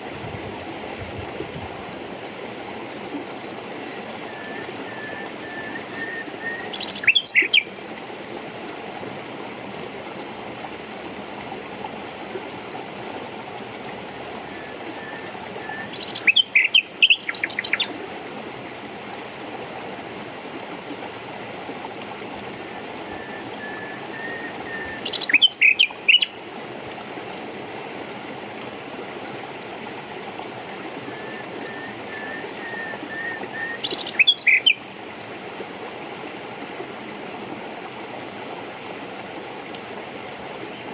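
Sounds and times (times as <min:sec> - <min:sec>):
stream rushing: 0:00.0 - 0:40.9
songbird chirping: 0:04.4 - 0:07.8, 0:24.2 - 0:26.4, 0:32.1 - 0:34.9.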